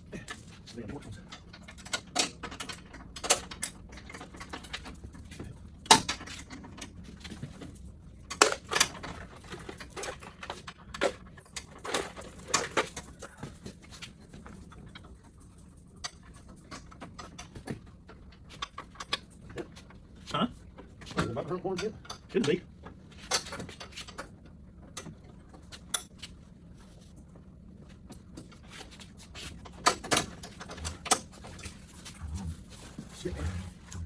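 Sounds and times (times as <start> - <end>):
clinks of hardware and tools: 0.2 - 5.0, 8.3 - 13.4.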